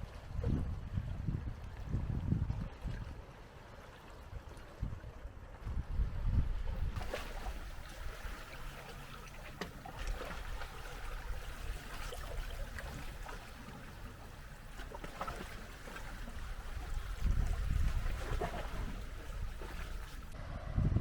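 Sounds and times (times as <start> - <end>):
sea water lapping at shore: 0.0 - 20.7
small water splashes: 6.8 - 20.4.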